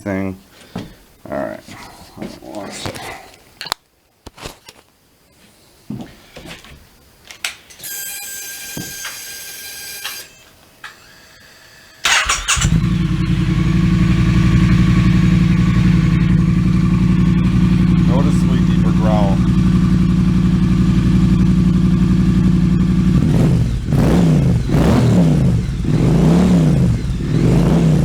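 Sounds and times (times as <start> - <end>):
starter motor whine: 11.0 - 28.0
motorcycle engine idling: 12.1 - 28.0.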